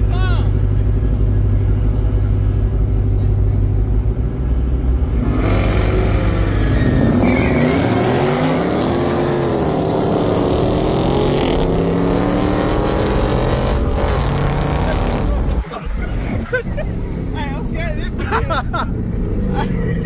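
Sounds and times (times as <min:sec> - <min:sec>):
race car engine accelerating: 0:03.9 - 0:16.4.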